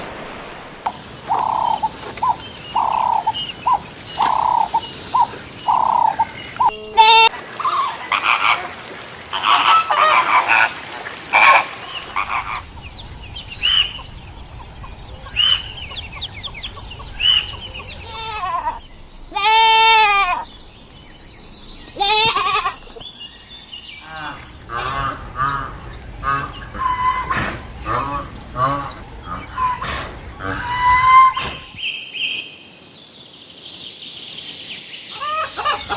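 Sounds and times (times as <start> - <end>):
goats bleating: 22.0 - 23.0.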